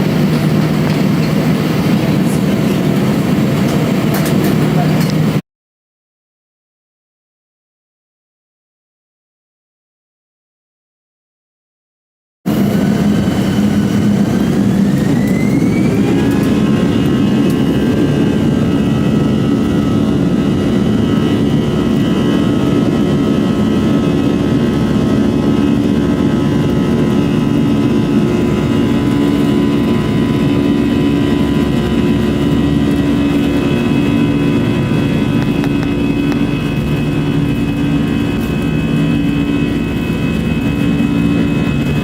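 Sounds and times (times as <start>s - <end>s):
jet engines spooling up: 0.0s - 5.4s, 12.5s - 42.0s.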